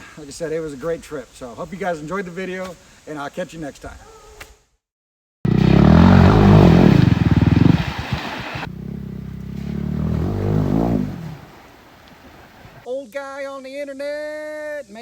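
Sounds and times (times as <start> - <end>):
small motorcycle engine revving: 5.5 - 11.6.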